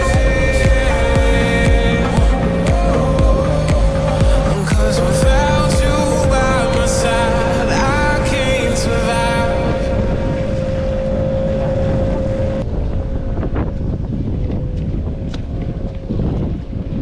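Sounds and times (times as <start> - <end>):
steady held tone: 0.0 - 13.6
small boat noise: 0.0 - 17.0
wind buffeting microphone: 0.0 - 17.0.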